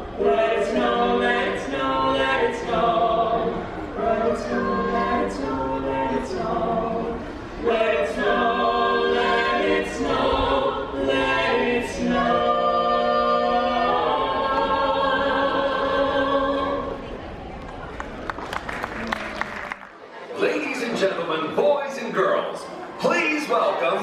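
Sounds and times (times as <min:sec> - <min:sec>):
carolers singing a cappella: 0:00.0 - 0:17.2.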